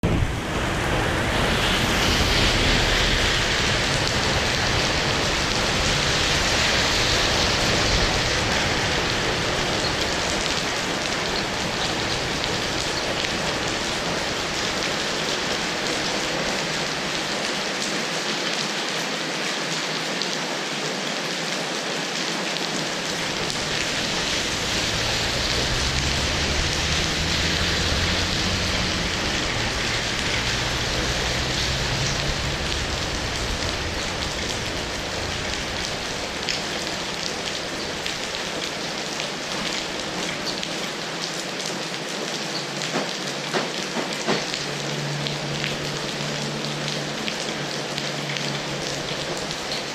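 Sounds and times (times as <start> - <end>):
low rumble: 0.0 - 13.8, 22.9 - 38.7
heavy rain falling: 0.0 - 49.9.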